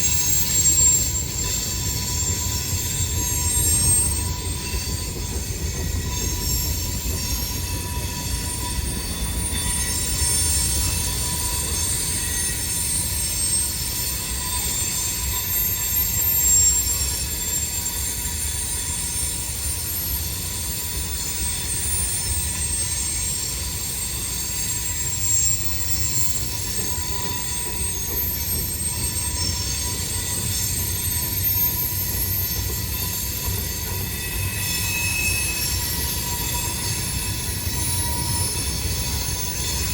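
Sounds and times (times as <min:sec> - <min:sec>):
low rumble of train cars: 0:00.0 - 0:39.9
train wheels squealing: 0:00.0 - 0:39.9.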